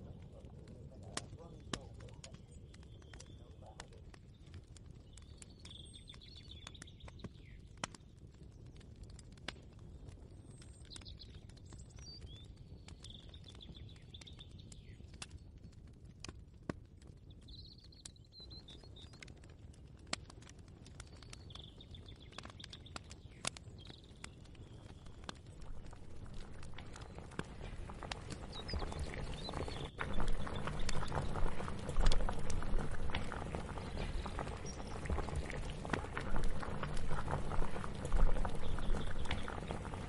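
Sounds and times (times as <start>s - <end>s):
birds chirping: 0.0s - 7.9s, 10.4s - 15.2s, 21.0s - 40.0s
low steady hum: 25.1s - 40.0s.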